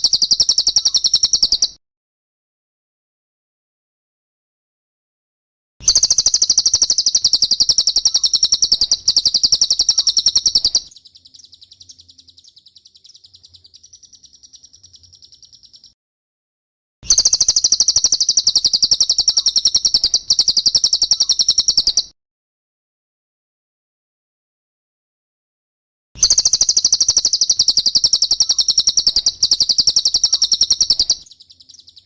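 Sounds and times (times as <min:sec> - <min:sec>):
bird song with high chips: 0:00.0 - 0:01.8, 0:05.8 - 0:16.0, 0:17.1 - 0:22.2, 0:26.2 - 0:32.0
buzzy bird trill: 0:00.0 - 0:01.8, 0:05.8 - 0:16.0, 0:17.1 - 0:22.1, 0:26.2 - 0:32.0.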